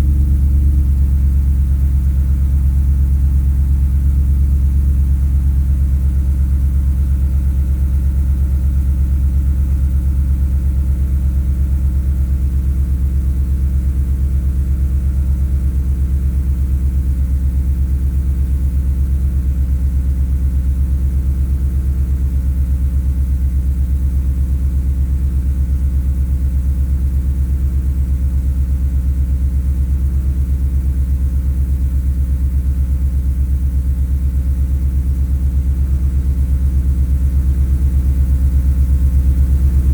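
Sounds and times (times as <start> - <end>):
car engine idling: 38.3 - 39.9.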